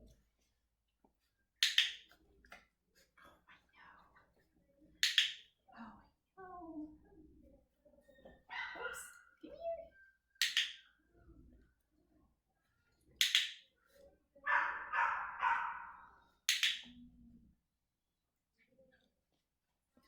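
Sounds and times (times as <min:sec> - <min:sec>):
training clicker clicks: 0:10.4 - 0:10.8, 0:16.5 - 0:17.0
puppy yelping: 0:14.5 - 0:16.1.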